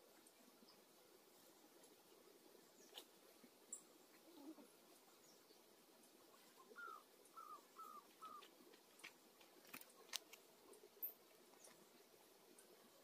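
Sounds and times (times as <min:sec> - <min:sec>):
faint bird call: 0:06.6 - 0:08.5
faint clicks: 0:08.3 - 0:11.8.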